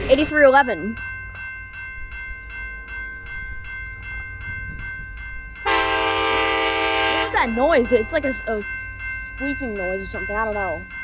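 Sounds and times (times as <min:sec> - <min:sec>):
level crossing bells ringing: 0:00.0 - 0:11.0
train air horn: 0:05.6 - 0:07.4.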